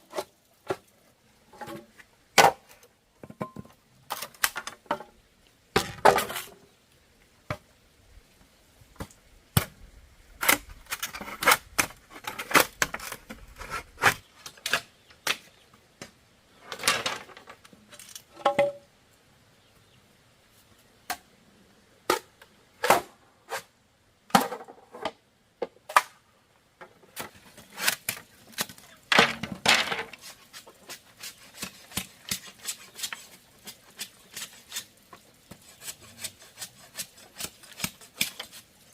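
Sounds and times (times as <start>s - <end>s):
bamboo knocking and clacking: 2.4s - 5.1s, 18.3s - 18.8s, 28.1s - 35.7s.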